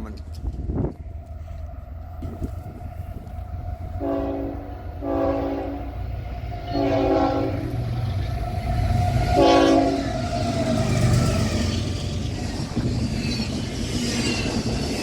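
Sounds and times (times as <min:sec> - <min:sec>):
train rumbling: 0:00.0 - 0:15.0
locomotive air horn blasts: 0:04.0 - 0:06.0, 0:06.7 - 0:07.8, 0:09.3 - 0:10.1.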